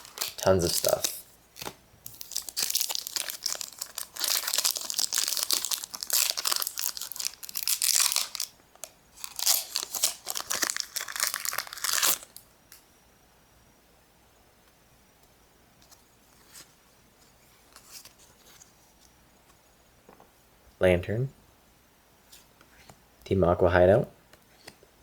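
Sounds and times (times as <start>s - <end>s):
foil wrapper tearing and crinkling: 0.0s - 12.4s.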